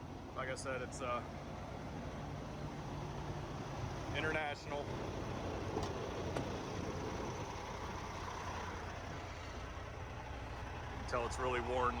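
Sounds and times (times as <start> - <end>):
diesel truck engine idling: 0.2 - 12.0.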